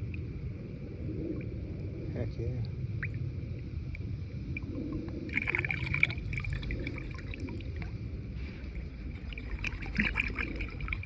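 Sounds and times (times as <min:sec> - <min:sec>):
river water splashing and trickling: 0:05.3 - 0:11.0.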